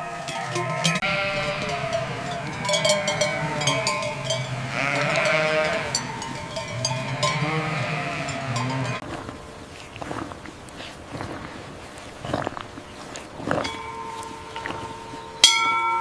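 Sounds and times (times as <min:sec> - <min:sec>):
animal bleating: 0:00.0 - 0:09.0
cowbells clanking: 0:00.0 - 0:09.6, 0:13.5 - 0:16.0.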